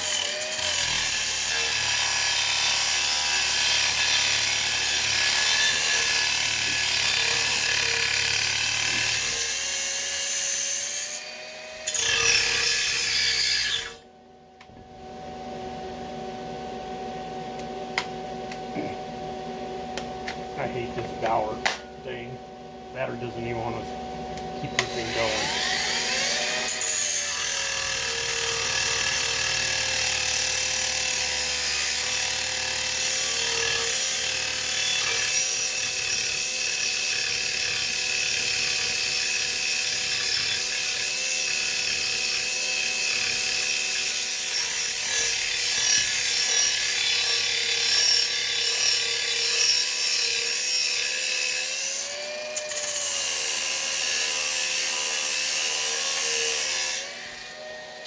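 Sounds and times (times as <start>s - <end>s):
cordless power tool motor running: 24.4s - 36.6s.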